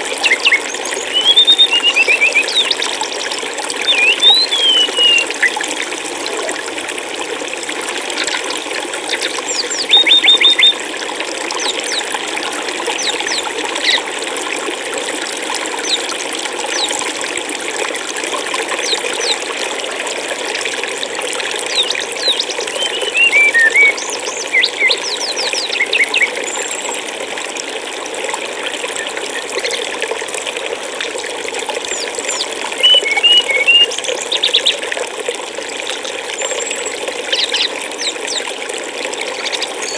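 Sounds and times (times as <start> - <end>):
small birds chirping: 0.0 - 5.6, 9.1 - 10.8, 18.8 - 19.5, 21.6 - 26.8, 31.9 - 34.8, 36.4 - 38.5, 39.3 - 39.9
water rushing: 0.0 - 39.9.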